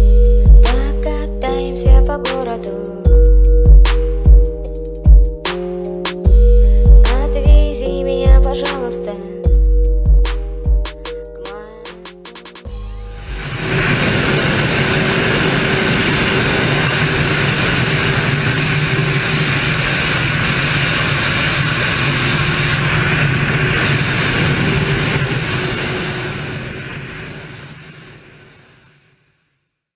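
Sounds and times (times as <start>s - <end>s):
motorcycle engine drone: 0.0s - 29.1s
road and wind noise: 13.0s - 29.0s.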